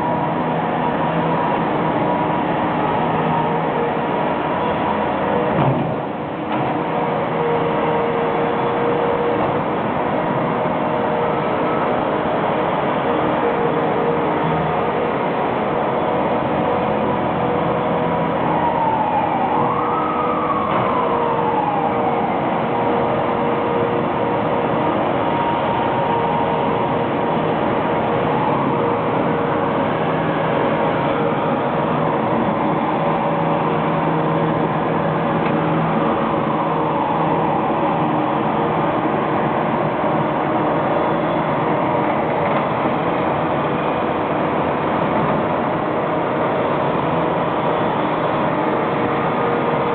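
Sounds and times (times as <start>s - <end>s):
tractor sweeper running: 0.0s - 49.9s
siren wailing: 16.0s - 35.4s, 36.0s - 38.9s.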